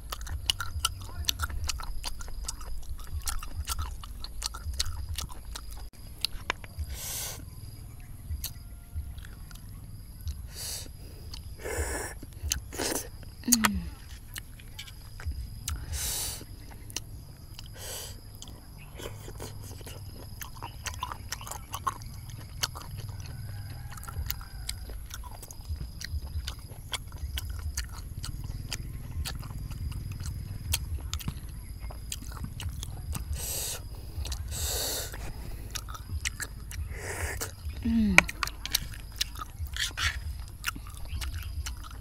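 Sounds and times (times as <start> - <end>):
snail shells clicking: 0.0 - 6.9, 8.3 - 42.0
wet chewing: 0.0 - 42.0.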